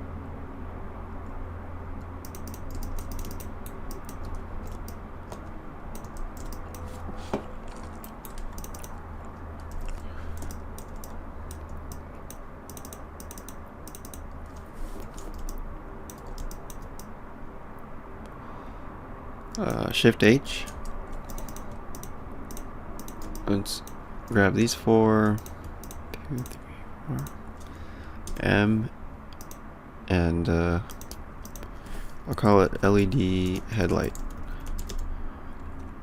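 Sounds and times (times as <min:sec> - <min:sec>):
steady low hum: 0:00.0 - 0:36.0
keyboard keys clicking: 0:02.2 - 0:17.1, 0:20.7 - 0:24.4, 0:25.2 - 0:28.5, 0:30.9 - 0:31.7, 0:33.4 - 0:36.0.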